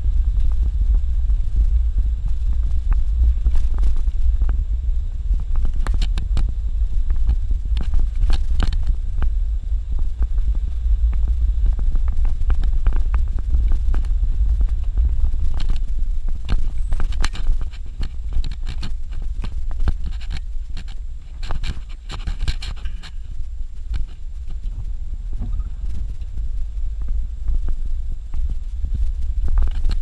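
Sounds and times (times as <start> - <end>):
vehicle rumbling on dirt road: 0.0 - 30.0
clicks and knocks over rough ground: 5.4 - 9.4, 10.0 - 30.0.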